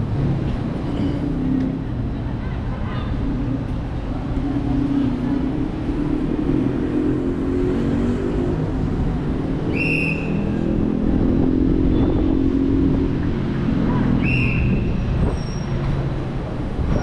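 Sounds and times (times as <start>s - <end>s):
short high squeal: 14.2s - 15.8s.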